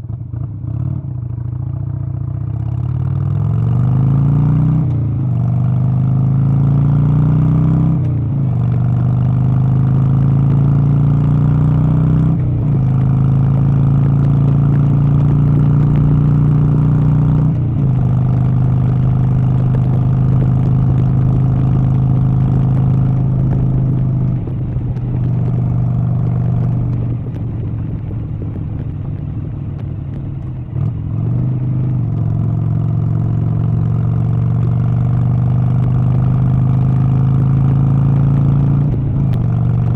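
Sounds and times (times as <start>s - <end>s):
vehicle engine accelerating: 2.5s - 39.9s.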